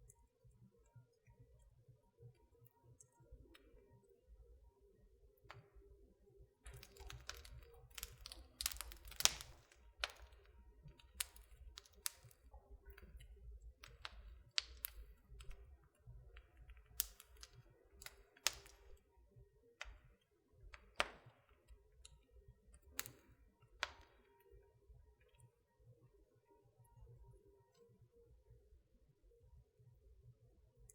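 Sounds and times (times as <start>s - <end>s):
low rumble of fire: 6.7s - 19.0s
wood fire popping and snapping: 6.7s - 19.1s, 19.8s - 24.4s.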